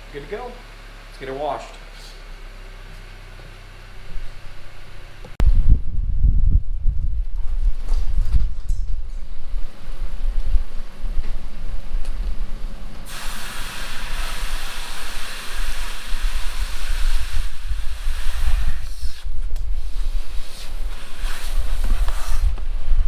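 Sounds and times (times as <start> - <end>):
wind rumble on microphone: 5.4 - 13.0, 14.1 - 23.0
water spray hissing: 13.1 - 22.5.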